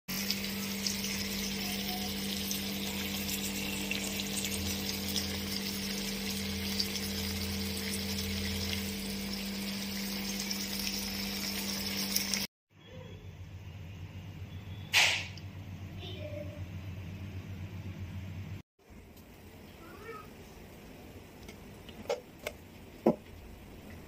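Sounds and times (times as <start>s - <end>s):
masala frying with crackling hiss: 0.1s - 12.5s, 18.8s - 24.0s.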